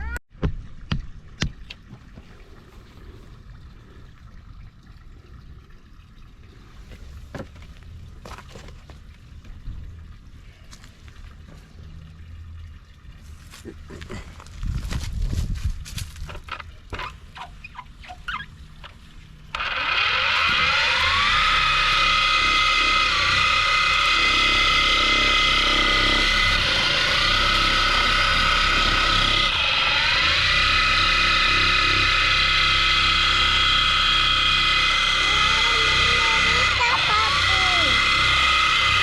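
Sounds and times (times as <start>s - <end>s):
power tool whining: 16.3s - 39.0s.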